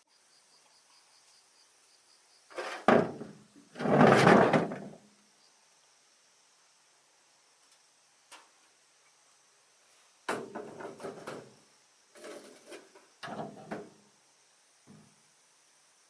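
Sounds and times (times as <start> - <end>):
clattering knocks and scrapes: 2.5 - 5.0, 10.3 - 11.6, 12.2 - 13.9.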